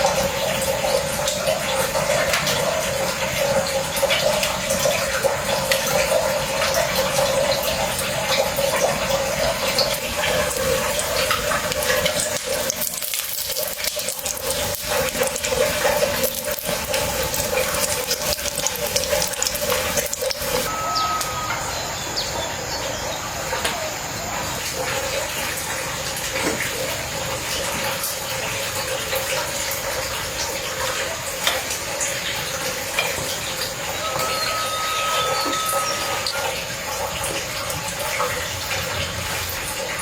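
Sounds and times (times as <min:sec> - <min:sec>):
running water rushing: 0:00.0 - 0:40.0
small crackles and clicks: 0:09.8 - 0:20.7.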